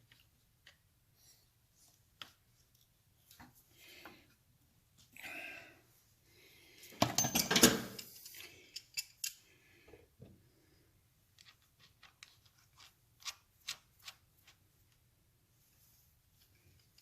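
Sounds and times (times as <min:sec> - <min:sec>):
clatter of metal handling: 0:07.0 - 0:09.3
pliers clicking and scraping metal: 0:07.4 - 0:09.5.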